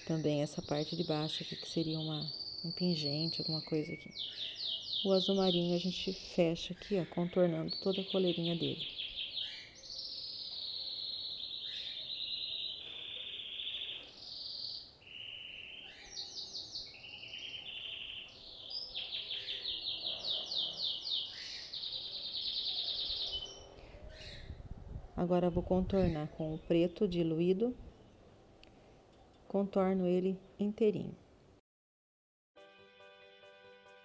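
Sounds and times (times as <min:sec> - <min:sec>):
songbird singing trills: 0:00.0 - 0:24.6.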